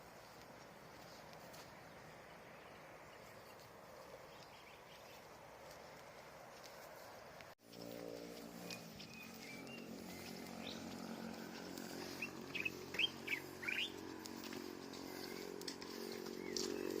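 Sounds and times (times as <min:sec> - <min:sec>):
bird chirping: 0:02.3 - 0:05.3, 0:08.5 - 0:17.0
steady low hum: 0:07.1 - 0:17.0.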